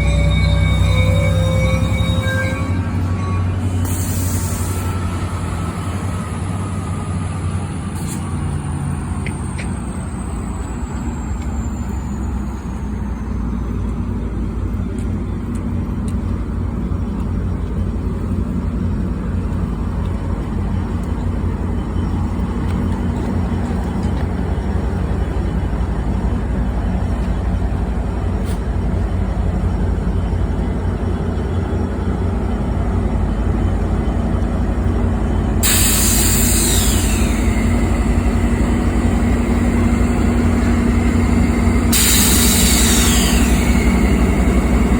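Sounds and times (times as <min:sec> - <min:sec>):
train engine rumble: 0:00.0 - 0:44.9
loud air hiss falling in pitch: 0:03.8 - 0:05.0, 0:35.6 - 0:38.0, 0:41.9 - 0:44.1.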